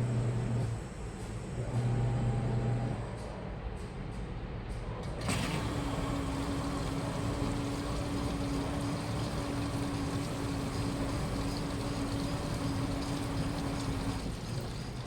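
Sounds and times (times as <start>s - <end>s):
washing machine motor hum: 5.2s - 15.0s.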